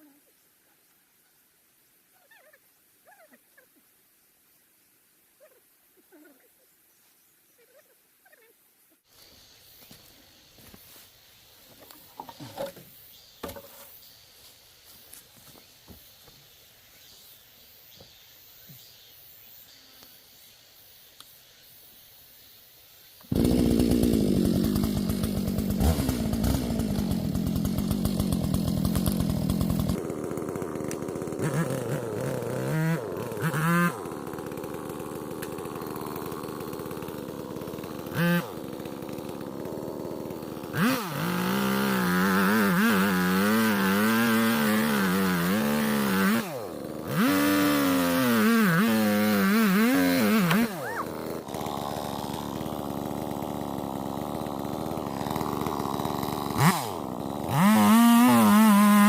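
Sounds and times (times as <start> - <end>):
chainsaw engine revving: 23.3 - 59.0.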